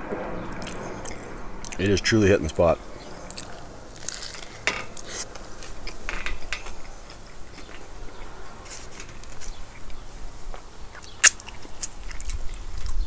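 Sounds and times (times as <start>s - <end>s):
sandwich chewing: 3.1s - 13.0s.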